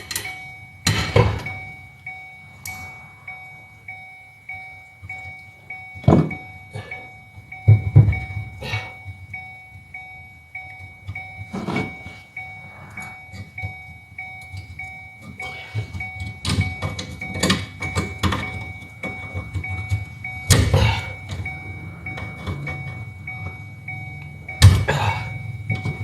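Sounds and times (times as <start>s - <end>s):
knocks and clunks: 0.0s - 3.8s, 4.9s - 9.9s, 10.6s - 26.0s
car warning chime beeping: 0.0s - 26.0s.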